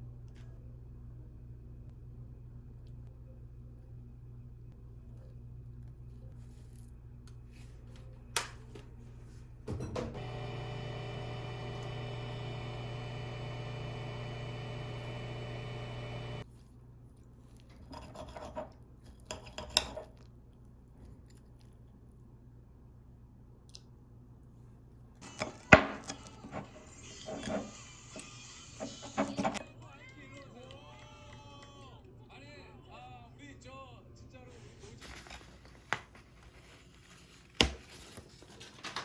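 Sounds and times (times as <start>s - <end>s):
kitchen appliance humming: 9.8s - 16.5s, 25.2s - 29.6s.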